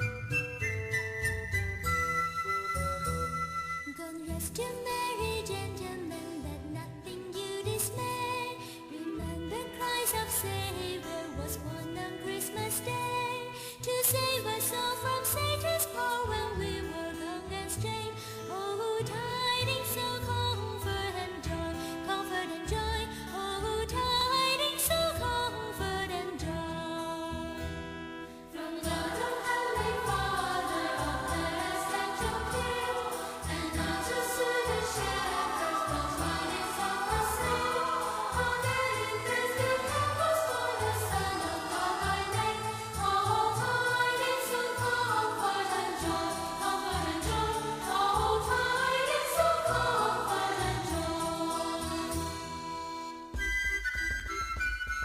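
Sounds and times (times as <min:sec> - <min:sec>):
choir-like singing music: 0:03.9 - 0:53.1
choir-like singing with beat: 0:28.6 - 0:52.5.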